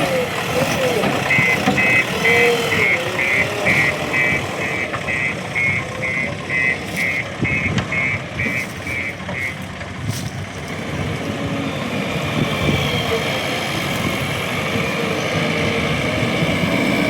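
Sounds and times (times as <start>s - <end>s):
reversing alarm beeping: 0.0s - 9.7s.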